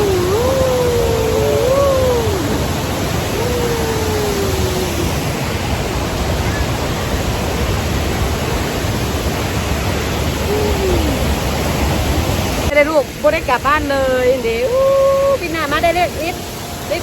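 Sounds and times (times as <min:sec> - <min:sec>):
person calling out: 0:00.0 - 0:05.2, 0:10.5 - 0:11.6, 0:14.5 - 0:17.0
waterfall rushing: 0:00.0 - 0:17.0.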